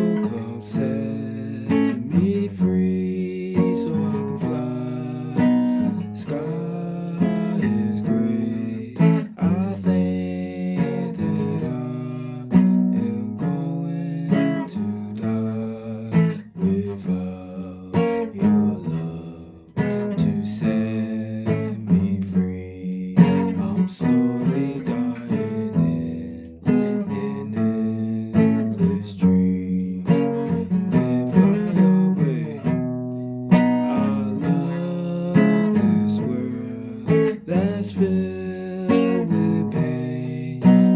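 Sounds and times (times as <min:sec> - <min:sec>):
guitar playing: 0:00.0 - 0:40.9.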